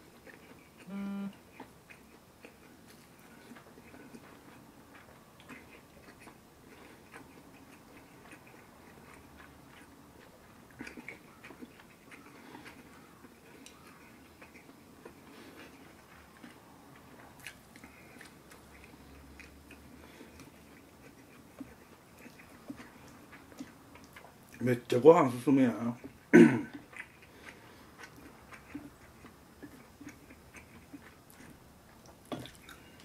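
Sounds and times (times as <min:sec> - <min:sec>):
man chewing food: 0:00.0 - 0:25.0, 0:25.7 - 0:33.0
brief pitched hum: 0:00.9 - 0:01.3.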